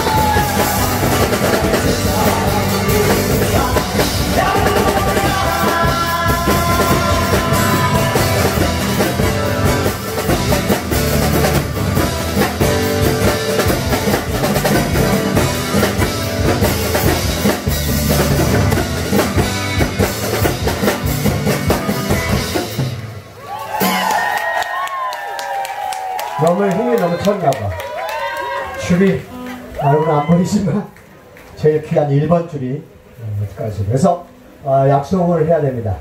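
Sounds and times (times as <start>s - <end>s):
electric guitar melody: 0.0s - 23.2s
live rock band playing: 0.0s - 24.4s
drum kit beat: 0.0s - 24.5s.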